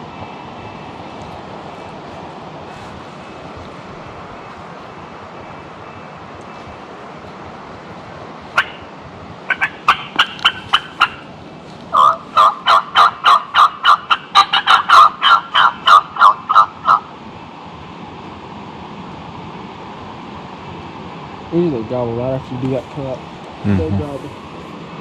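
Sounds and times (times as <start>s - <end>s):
turkey call clucks: 8.6s - 8.9s, 9.5s - 11.3s, 11.9s - 17.1s.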